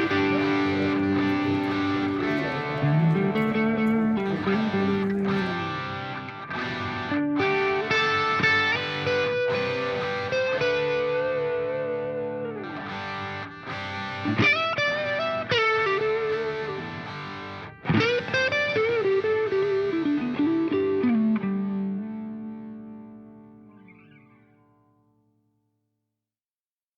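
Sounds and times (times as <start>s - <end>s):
distorted electric guitar bending notes: 0.0s - 6.1s.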